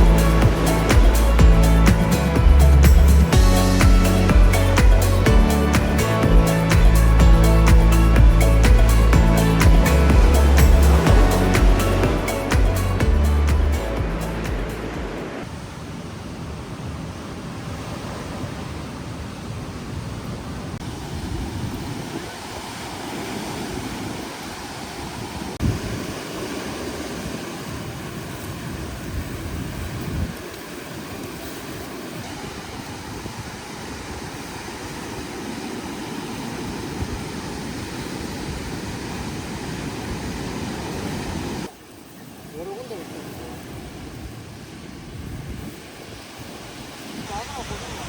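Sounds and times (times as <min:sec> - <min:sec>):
strong wind buffeting microphone: 0:00.0 - 0:41.7, 0:43.4 - 0:48.0.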